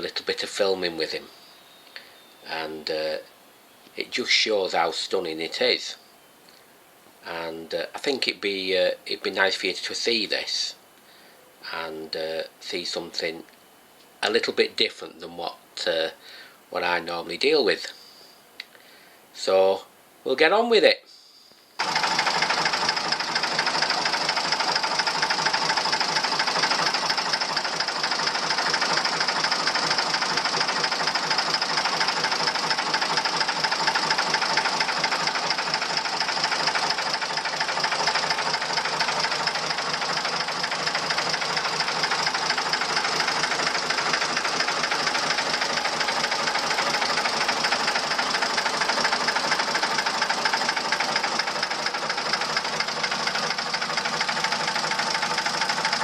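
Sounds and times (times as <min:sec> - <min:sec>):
diesel engine knocking: 0:21.8 - 0:56.0.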